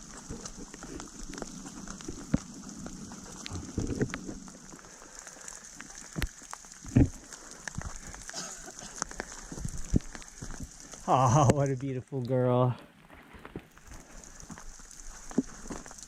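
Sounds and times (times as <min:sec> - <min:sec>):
heavier raindrop thuds: 0:00.0 - 0:12.0
raindrops tapping: 0:00.0 - 0:16.0.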